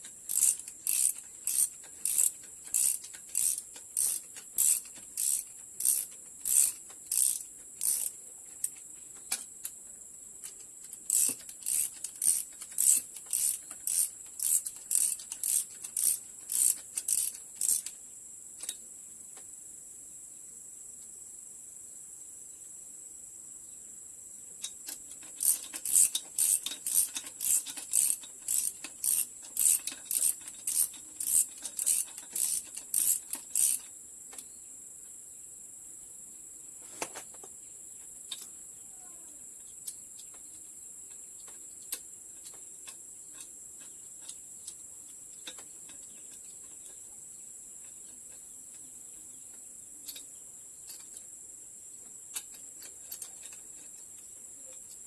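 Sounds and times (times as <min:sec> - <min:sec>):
socket ratchet clicking: 0:00.0 - 0:08.2, 0:10.4 - 0:18.0, 0:24.6 - 0:34.0.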